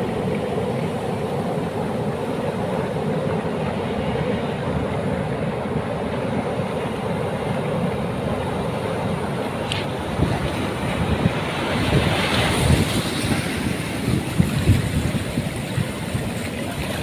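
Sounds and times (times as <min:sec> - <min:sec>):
sea surf rumbling: 0:00.0 - 0:17.0
wind buffeting microphone: 0:07.8 - 0:17.0.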